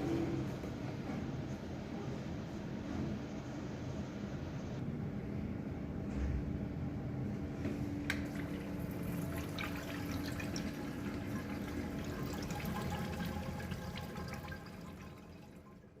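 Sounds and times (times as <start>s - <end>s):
water running through a urinal: 8.1s - 16.0s.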